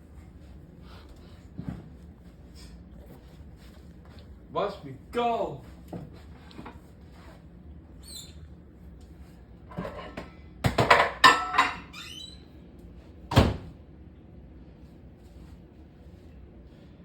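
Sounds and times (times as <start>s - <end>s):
squeaky door opening: 8.0s - 8.4s, 11.8s - 12.5s.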